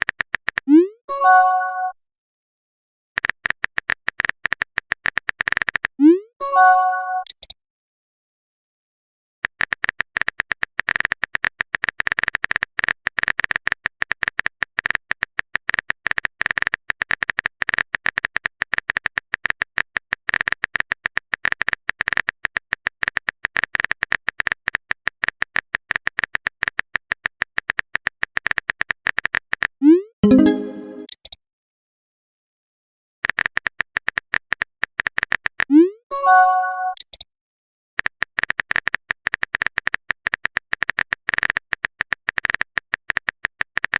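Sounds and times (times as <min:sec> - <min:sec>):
keyboard typing clicks: 0:07.2 - 0:07.6, 0:25.2 - 0:31.4.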